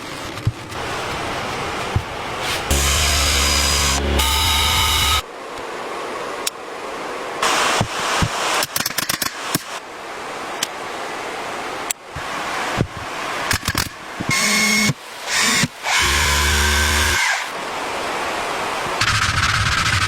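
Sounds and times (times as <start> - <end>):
steady hiss: 7.3 - 10.6.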